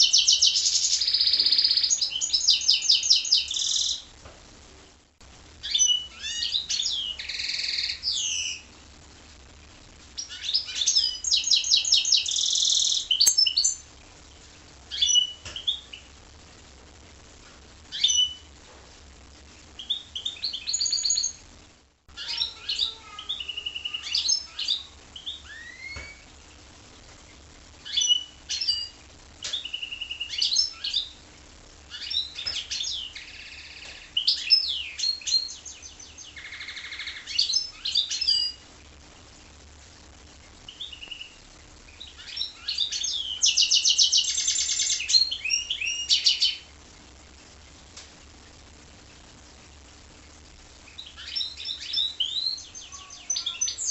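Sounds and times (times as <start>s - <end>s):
songbird singing: 0.0s - 4.1s, 10.2s - 13.9s, 22.2s - 26.3s, 40.7s - 46.6s, 50.9s - 53.9s.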